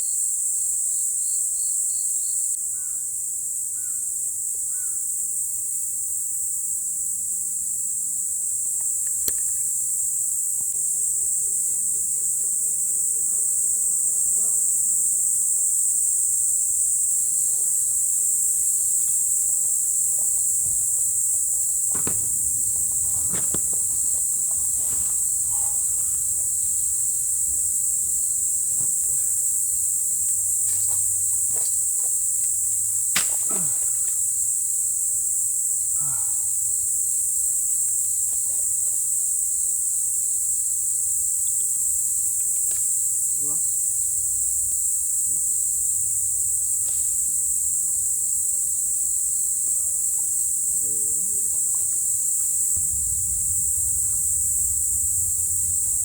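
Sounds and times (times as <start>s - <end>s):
crickets chirring: 0.0s - 56.0s
faint knocks: 20.1s - 29.5s.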